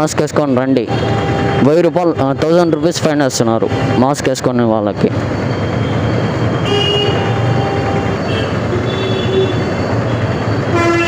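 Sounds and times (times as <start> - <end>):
motorbike running: 0.0 - 11.0
faint vehicle horns: 0.8 - 4.3, 6.6 - 11.0.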